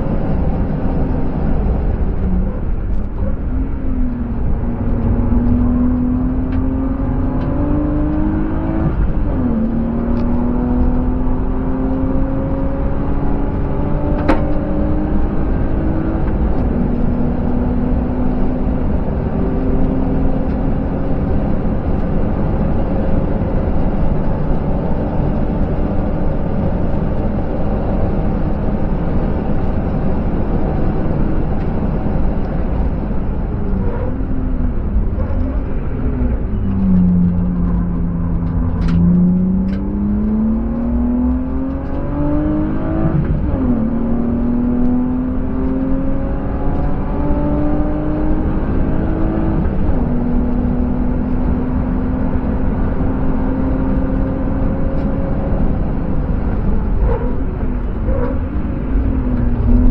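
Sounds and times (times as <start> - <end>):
car engine accelerating: 0.0 - 59.9
wind and tyre roar: 0.0 - 59.9.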